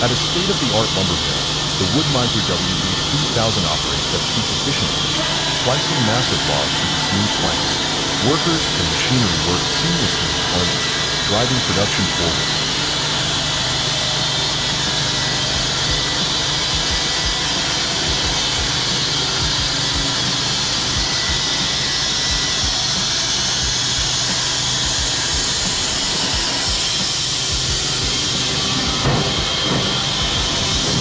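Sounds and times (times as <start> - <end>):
machinery hissing and humming: 0.0 - 31.0.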